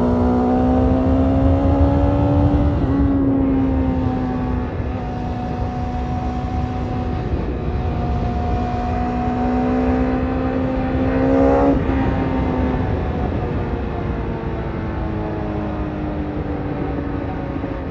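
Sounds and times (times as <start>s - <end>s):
motorcycle engine revving: 0.0s - 13.7s.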